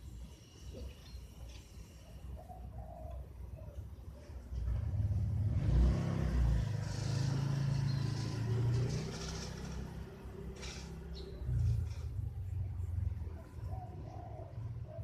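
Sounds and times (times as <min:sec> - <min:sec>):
car engine rumbling: 0:04.5 - 0:13.8.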